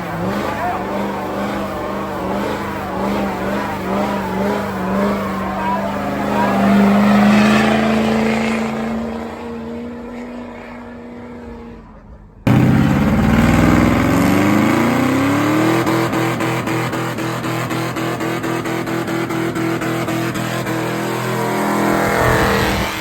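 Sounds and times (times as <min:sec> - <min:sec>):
engine revving up pulsing: 0:00.0 - 0:23.0
truck engine high revs: 0:00.0 - 0:23.0.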